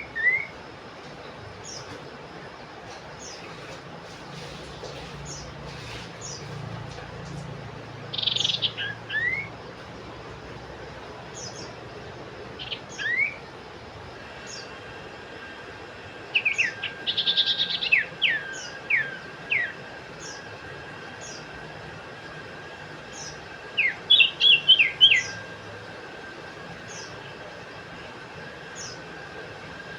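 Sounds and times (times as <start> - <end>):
bird whistling and trilling: 0.0 - 0.6, 8.1 - 9.5, 12.6 - 13.4, 16.4 - 20.4, 23.8 - 25.4.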